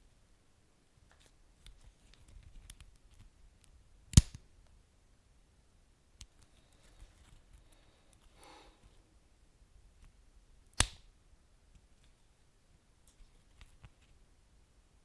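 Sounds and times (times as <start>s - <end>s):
loud sharp snap of fire: 4.1s - 4.4s, 10.8s - 11.1s.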